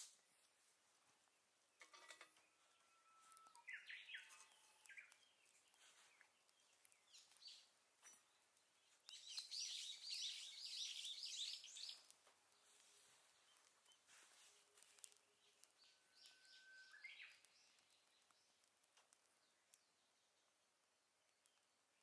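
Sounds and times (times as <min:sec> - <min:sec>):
bird chirping: 0:01.2 - 0:20.6
faint sharp clicks: 0:03.3 - 0:08.2, 0:09.0 - 0:20.0.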